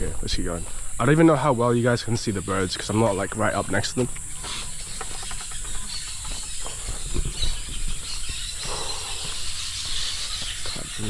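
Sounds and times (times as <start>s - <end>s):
steady high hiss: 0.0s - 7.0s
faint bird chirps: 0.0s - 11.0s
low thuds from walking: 2.8s - 11.0s.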